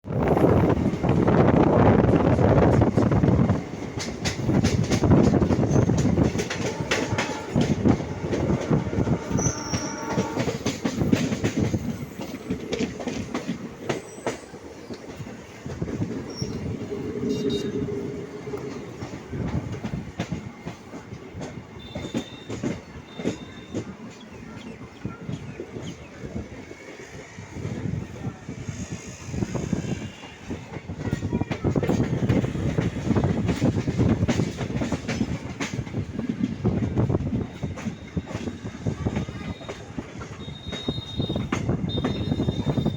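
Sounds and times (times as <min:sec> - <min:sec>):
train wheels clattering over rail joints: 0:00.6 - 0:28.1, 0:29.2 - 0:42.9
high wheel squeals: 0:05.6 - 0:06.1, 0:09.3 - 0:10.4, 0:16.2 - 0:18.1.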